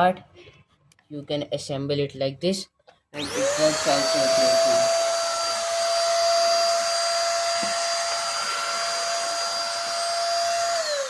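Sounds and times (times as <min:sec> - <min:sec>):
vacuum cleaner running: 0:03.2 - 0:11.0.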